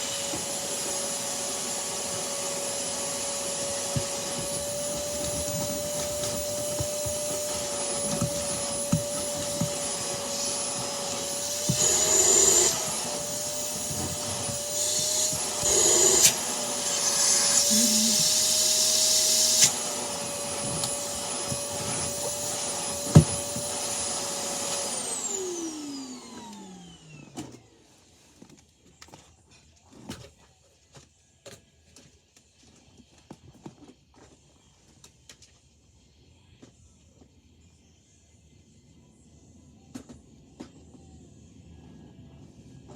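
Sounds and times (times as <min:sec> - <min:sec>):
vacuum cleaner motor whine: 0:00.0 - 0:28.5.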